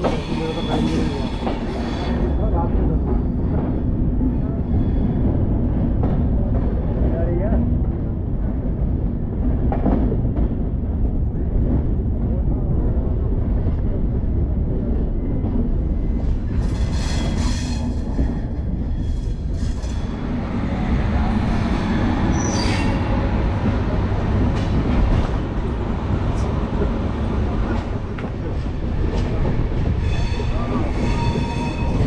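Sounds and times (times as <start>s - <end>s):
train rumbling on rails: 0.0s - 32.0s.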